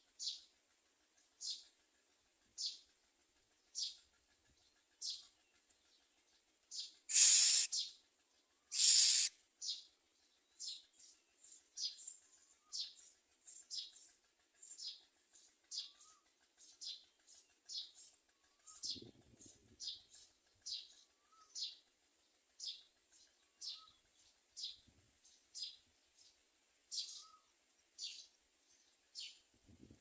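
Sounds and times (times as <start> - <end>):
high downward-sliding bird chirp: 7.1 - 7.9, 8.7 - 9.3.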